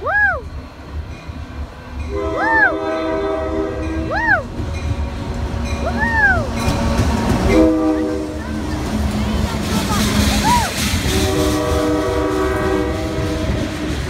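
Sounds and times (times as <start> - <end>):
person whooping: 0.0 - 0.5, 4.1 - 4.5
low rumble of passing train: 0.0 - 14.0
train horn chord: 2.0 - 5.0, 7.5 - 8.7, 11.0 - 14.0.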